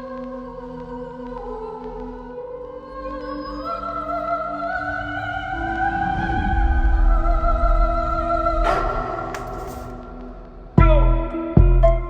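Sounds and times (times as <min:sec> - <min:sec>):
choir-like voices: 0:00.0 - 0:11.6
deep low rumble: 0:04.9 - 0:11.3.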